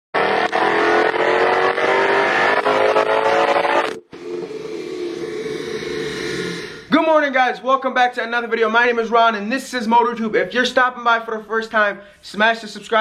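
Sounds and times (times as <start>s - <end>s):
car engine accelerating: 0.1s - 6.9s
steady engine drone: 0.4s - 6.9s.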